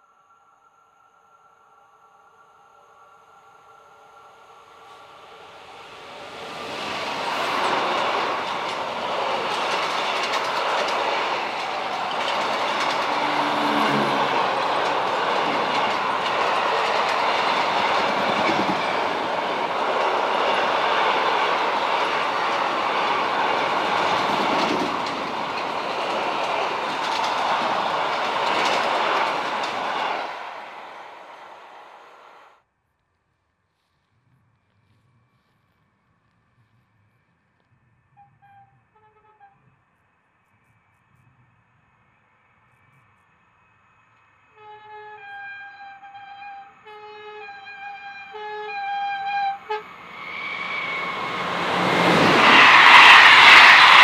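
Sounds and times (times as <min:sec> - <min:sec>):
freight train wheels rumbling on rails: 0:04.7 - 0:32.4, 0:47.5 - 0:54.0
wheel clicks on rail joints: 0:07.6 - 0:13.3.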